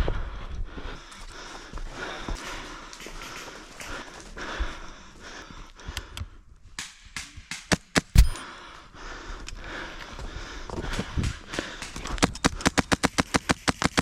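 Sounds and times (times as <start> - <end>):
footsteps: 0.8 - 5.4
sharp clicks or cracks: 10.9 - 14.0.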